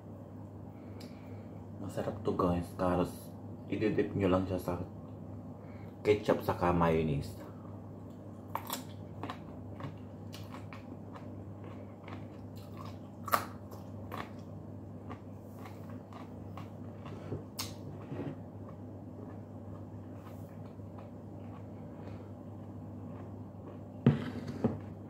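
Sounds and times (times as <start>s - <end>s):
low steady hum: 0.0s - 25.0s
carrot crunching: 8.5s - 25.0s.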